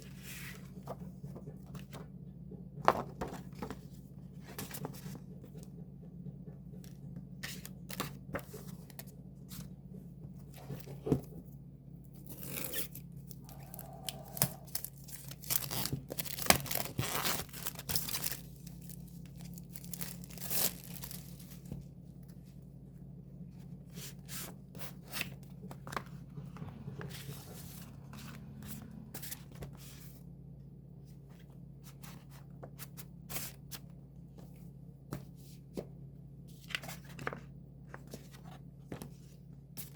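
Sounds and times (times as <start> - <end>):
steady low hum: 0.0 - 39.9
packaging tearing and crinkling: 14.3 - 19.0, 19.7 - 21.5.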